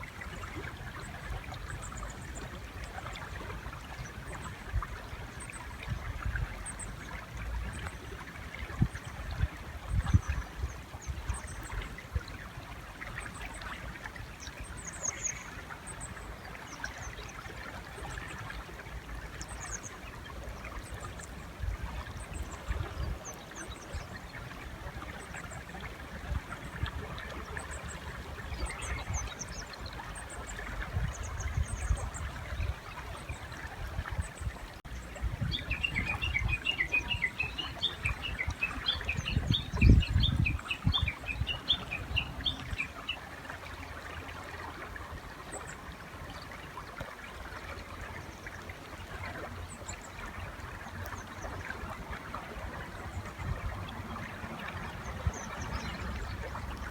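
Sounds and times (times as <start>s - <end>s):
water rushing: 12.0s - 56.9s
birds chirping: 35.0s - 43.2s.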